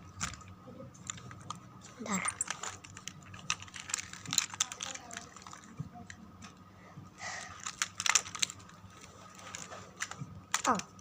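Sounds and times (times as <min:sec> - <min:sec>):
plastic toy parts clicking: 0:02.2 - 0:06.2, 0:07.5 - 0:08.7, 0:09.4 - 0:11.0.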